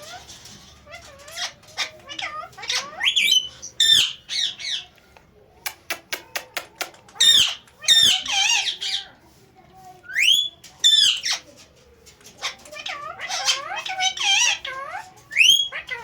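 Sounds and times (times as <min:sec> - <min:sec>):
parrot squawking and chirping: 0:00.0 - 0:05.0, 0:07.0 - 0:09.2, 0:10.0 - 0:16.0
sharp clicks: 0:05.6 - 0:07.8.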